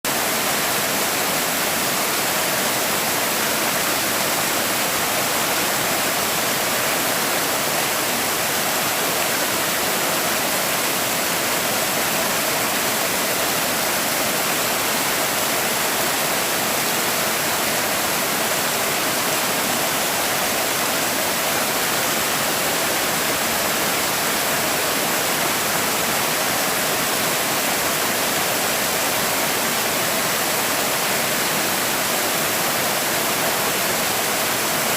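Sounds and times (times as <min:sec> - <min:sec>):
stream water rushing and splashing: 0:00.1 - 0:34.9.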